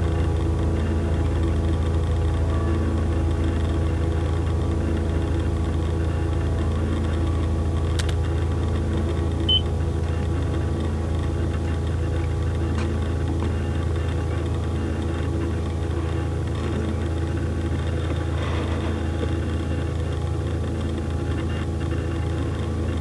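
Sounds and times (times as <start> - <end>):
low droning hum: 0.0 - 23.0
sharp click: 7.9 - 8.2
short high beep: 9.5 - 9.7.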